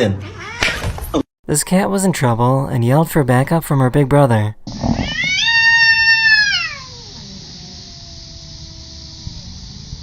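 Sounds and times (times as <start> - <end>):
cat yowling: 0.2 - 0.9, 5.0 - 9.4.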